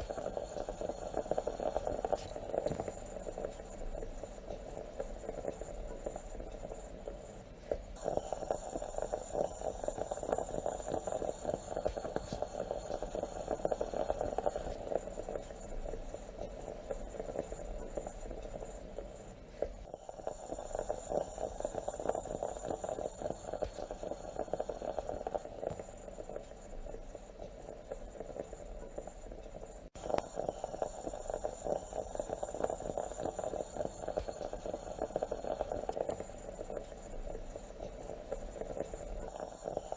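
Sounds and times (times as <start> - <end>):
moka pot bubbling and sputtering: 0.0 - 39.9.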